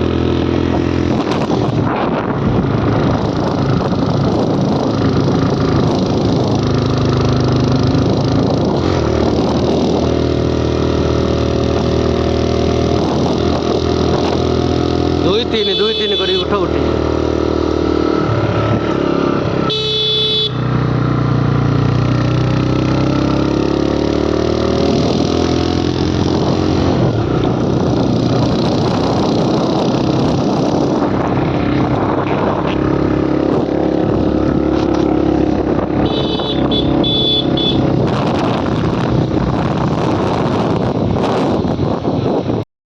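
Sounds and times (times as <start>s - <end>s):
motorcycle engine: 0.0s - 42.6s
traffic noise: 0.0s - 42.6s
vehicle horn beeping: 15.6s - 16.5s, 19.6s - 20.7s, 36.0s - 37.9s.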